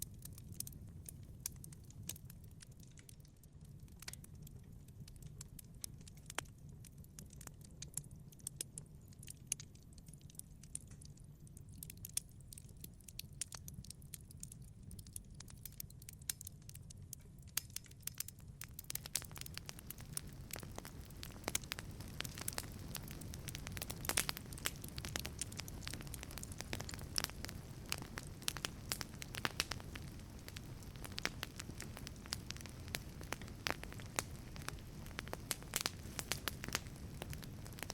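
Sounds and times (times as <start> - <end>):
wood fire crackling: 0.0 - 37.9
hiss of flame: 18.9 - 37.9.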